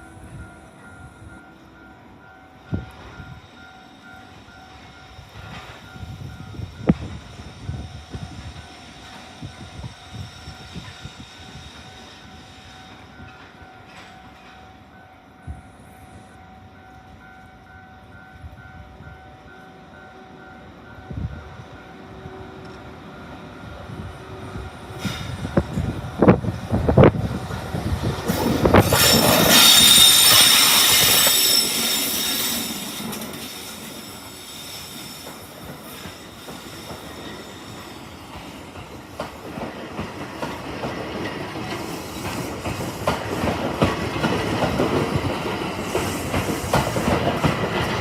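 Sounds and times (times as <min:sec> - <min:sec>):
train rolling past: 0:00.0 - 0:48.0
high-pitched wheel squeal: 0:28.3 - 0:38.0
wheels clacking over rail joints: 0:35.1 - 0:48.0.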